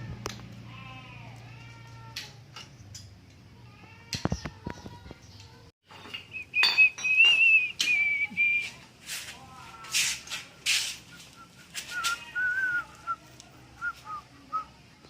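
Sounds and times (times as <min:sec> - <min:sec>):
person whistling: 0:06.3 - 0:08.8, 0:11.1 - 0:12.8.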